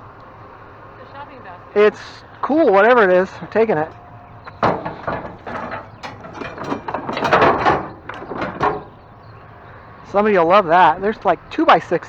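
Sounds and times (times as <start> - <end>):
hard objects rattling and clattering: 3.9 - 9.3.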